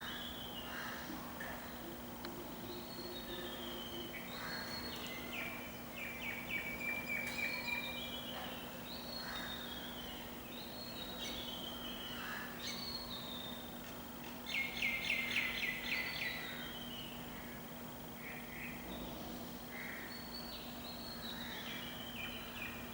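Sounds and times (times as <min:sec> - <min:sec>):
steady low hum: 0:00.0 - 0:22.9
bird chirps and trills: 0:02.6 - 0:13.5.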